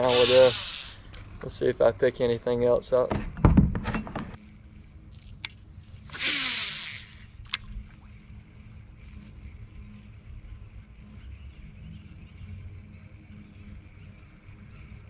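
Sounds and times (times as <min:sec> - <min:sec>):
fishing reel click: 0:00.0 - 0:01.0, 0:06.1 - 0:07.7.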